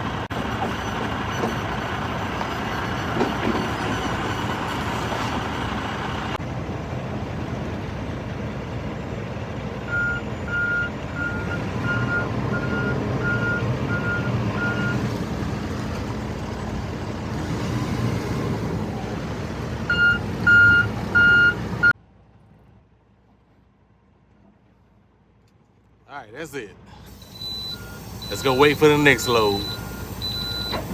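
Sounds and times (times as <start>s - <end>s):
engine running: 0.0s - 21.9s, 26.6s - 30.9s
backup alarm beeping: 9.9s - 15.0s, 19.9s - 21.6s, 27.1s - 30.9s.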